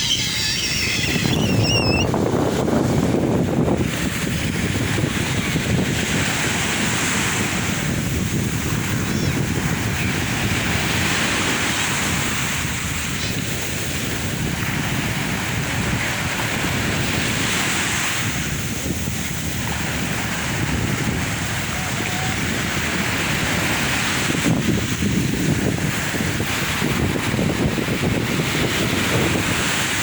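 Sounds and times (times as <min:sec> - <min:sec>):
sea waves breaking on shore: 0:00.0 - 0:30.0
wind rumble on microphone: 0:00.0 - 0:30.0.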